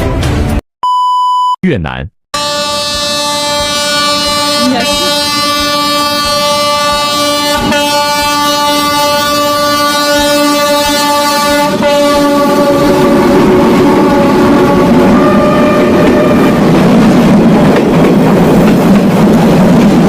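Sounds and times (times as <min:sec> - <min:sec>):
train horn blast: 0:02.4 - 0:16.7
train rumbling: 0:02.4 - 0:20.0.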